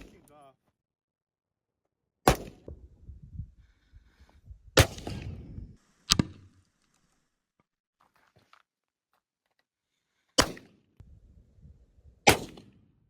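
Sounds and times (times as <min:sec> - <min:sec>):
gunshots with rumbling echo: 0:02.3 - 0:06.6, 0:10.4 - 0:12.9.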